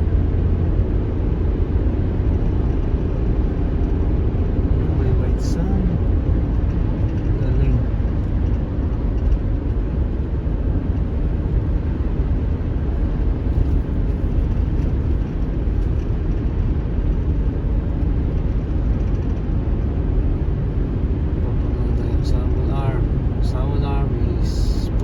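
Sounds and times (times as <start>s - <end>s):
car tyre and engine rumble: 0.0s - 25.0s.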